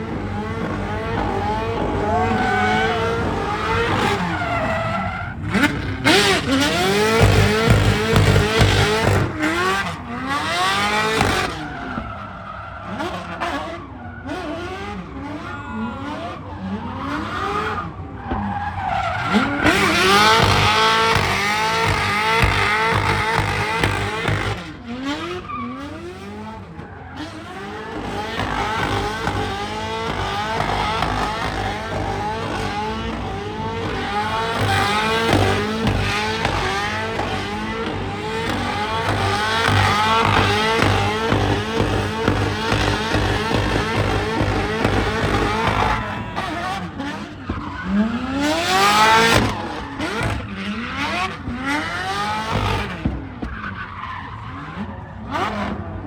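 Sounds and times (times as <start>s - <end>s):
tyres squealing: 0.0s - 11.8s, 27.8s - 46.9s
car engines revving: 0.0s - 56.0s.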